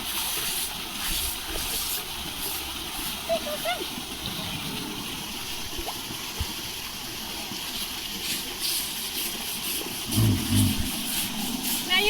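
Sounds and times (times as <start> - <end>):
water rushing: 0.7 - 12.0
low double rumble: 10.1 - 12.0.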